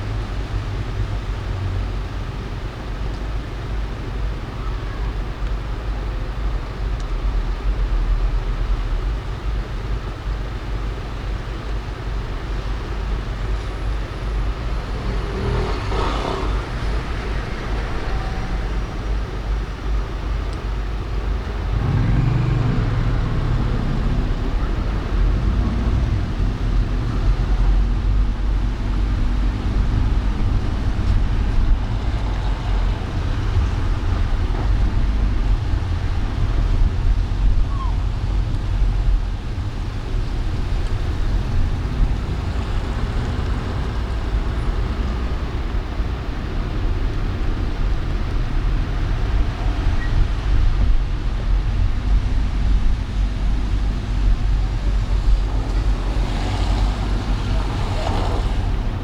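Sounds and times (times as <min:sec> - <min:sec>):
deep loud engine: 0:00.0 - 0:59.0
low rumble of engines and tyres: 0:00.0 - 0:59.0
vehicle passing: 0:14.6 - 0:19.5, 0:21.7 - 0:34.4, 0:53.2 - 0:59.0.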